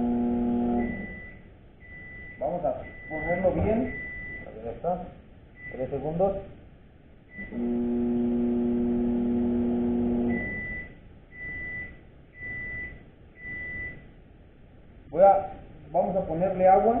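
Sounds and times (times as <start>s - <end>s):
microwave oven humming: 0.0s - 4.4s, 7.3s - 14.4s
microwave keypad beep: 0.8s - 4.5s, 10.3s - 14.0s
high beeps: 0.8s - 4.6s, 10.3s - 14.0s.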